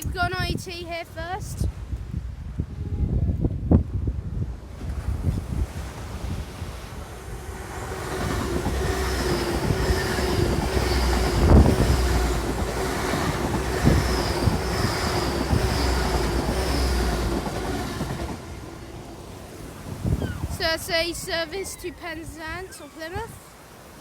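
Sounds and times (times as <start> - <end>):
diesel train passing: 4.5 - 22.3.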